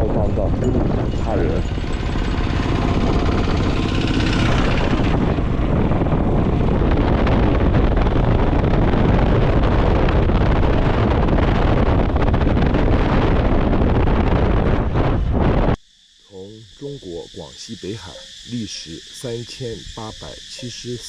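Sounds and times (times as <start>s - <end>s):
wind buffeting microphone: 0.0s - 15.8s
motorcycle engine running: 0.3s - 10.7s.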